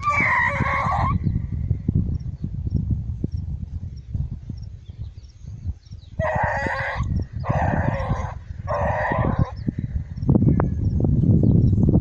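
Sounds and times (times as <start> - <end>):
wind buffeting microphone: 0.0 - 12.0
hounds baying: 6.2 - 9.6.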